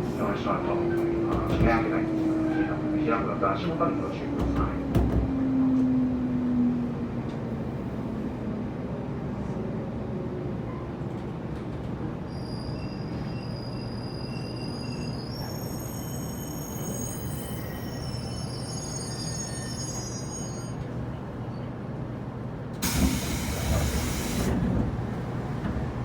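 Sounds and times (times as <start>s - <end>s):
train equipment hum: 22.0s - 26.0s.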